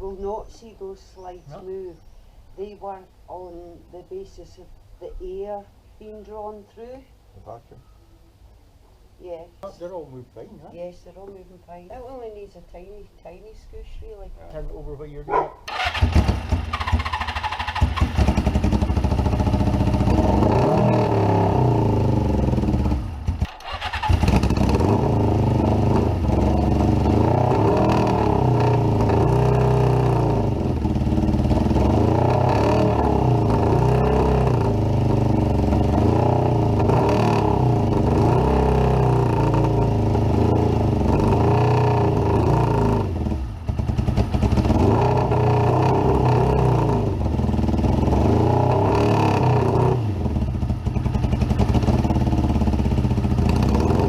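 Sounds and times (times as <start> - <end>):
motorcycle engine revving: 15.7 - 54.0.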